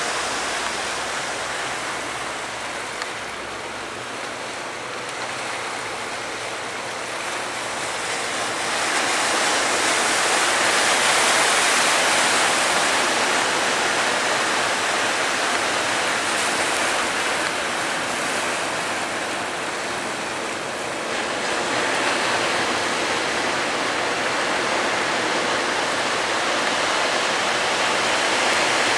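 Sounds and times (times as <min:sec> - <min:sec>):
sea waves breaking: 0:00.0 - 0:28.9.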